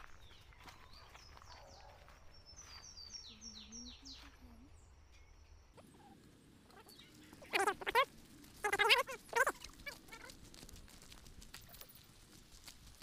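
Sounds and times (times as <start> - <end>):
footsteps on leaf litter: 0.0 - 3.0
faint whistled birdsong: 0.0 - 6.2.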